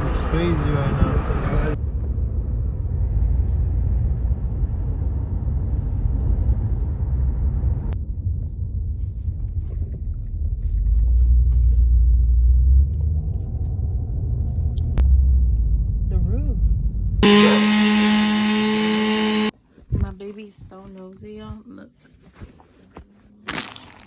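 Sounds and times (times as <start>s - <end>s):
road and engine rumble inside car: 0.0s - 17.7s.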